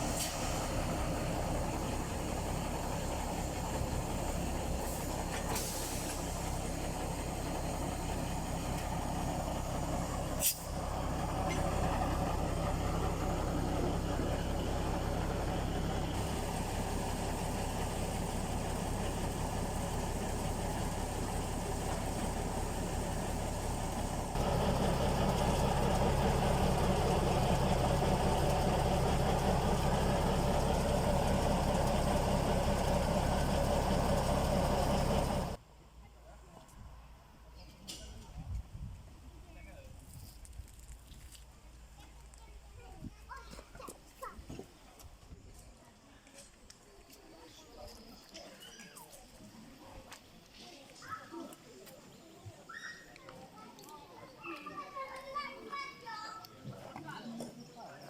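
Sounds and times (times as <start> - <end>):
diesel locomotive engine running: 0.0 - 35.7.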